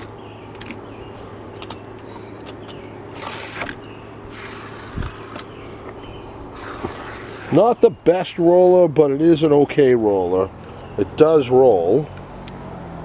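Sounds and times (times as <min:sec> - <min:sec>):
sharp clicks: 0:00.0 - 0:00.9, 0:01.5 - 0:07.5
toy car rolling on plastic track: 0:03.1 - 0:05.5, 0:06.6 - 0:07.6.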